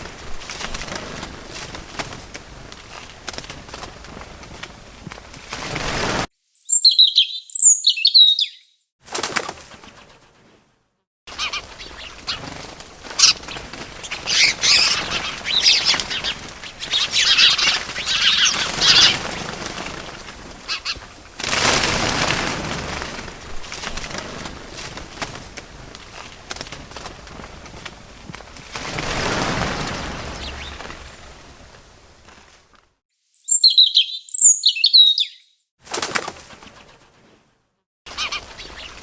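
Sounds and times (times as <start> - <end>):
wings flapping: 0.0 - 6.3, 9.0 - 10.7, 11.3 - 33.0, 35.8 - 37.5, 38.1 - 39.0
small birds chirping: 6.4 - 8.9, 11.3 - 21.3, 29.2 - 31.6, 33.2 - 35.6, 38.1 - 39.0.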